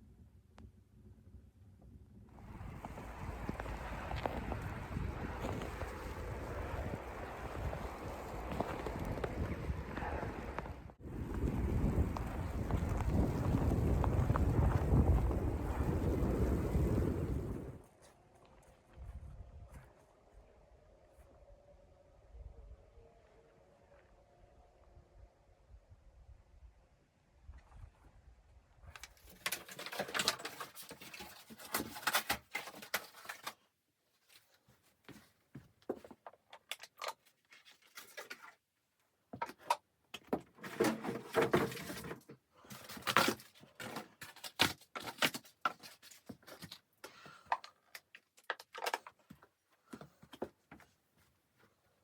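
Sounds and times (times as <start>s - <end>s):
rustling: 29.0s - 36.2s.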